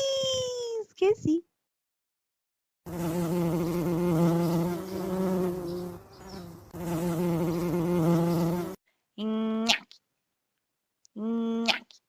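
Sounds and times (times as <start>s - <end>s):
insect buzzing: 2.9s - 8.8s.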